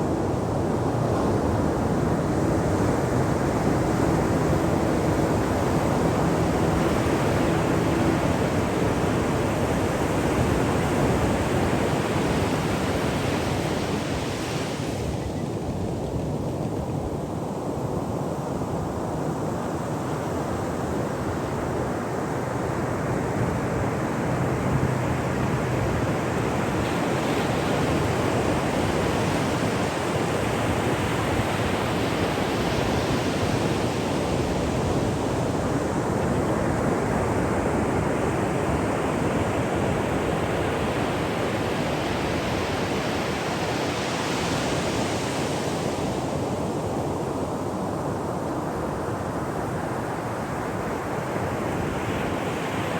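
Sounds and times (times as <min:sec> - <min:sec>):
ocean surf washing on shore: 0:00.0 - 0:52.9.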